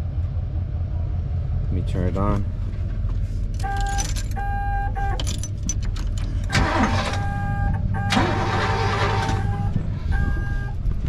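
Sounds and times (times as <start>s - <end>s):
engine low rumble: 0.0s - 11.0s
car engine revving: 6.2s - 10.7s
on-off warning buzzer: 6.5s - 10.6s.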